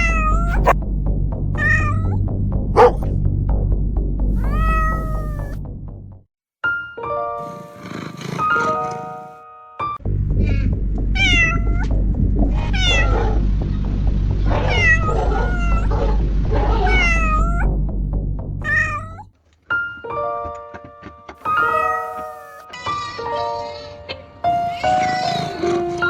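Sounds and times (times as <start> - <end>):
small animal mewing: 0.0 - 0.8, 2.8 - 3.1, 4.4 - 5.6, 18.7 - 19.3.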